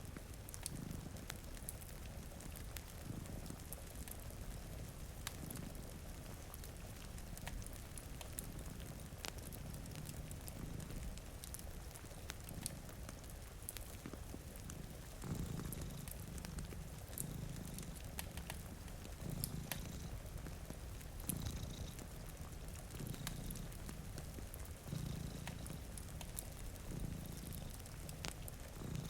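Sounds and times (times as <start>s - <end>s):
cat purring: 0.0s - 29.0s
wood fire crackling: 0.0s - 29.0s
rain hissing: 13.9s - 29.0s.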